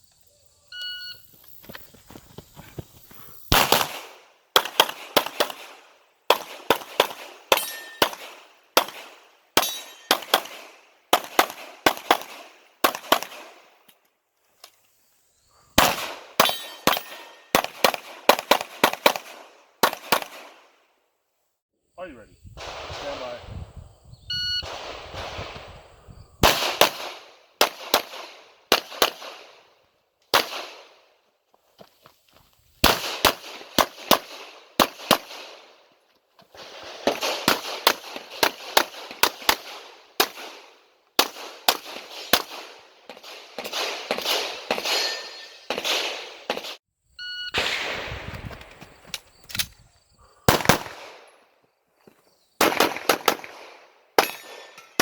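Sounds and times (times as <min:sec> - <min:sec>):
pistol firing: 0:03.5 - 0:13.7, 0:15.8 - 0:20.6, 0:26.4 - 0:29.6, 0:30.3 - 0:31.0, 0:32.8 - 0:35.7, 0:37.0 - 0:46.7, 0:50.5 - 0:51.2, 0:52.6 - 0:55.0.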